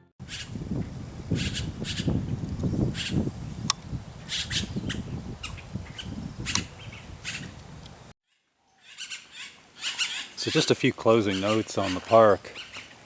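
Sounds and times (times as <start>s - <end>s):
birds giving harsh calls: 0.2s - 0.6s, 1.2s - 3.2s, 4.2s - 7.6s, 8.8s - 13.0s.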